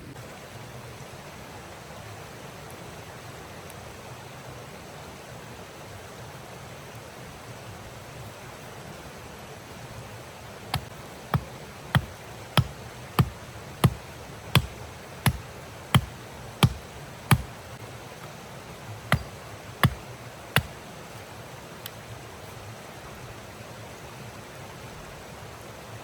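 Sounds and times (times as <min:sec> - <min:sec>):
sharp knocks: 0:10.8 - 0:17.6, 0:19.1 - 0:20.0.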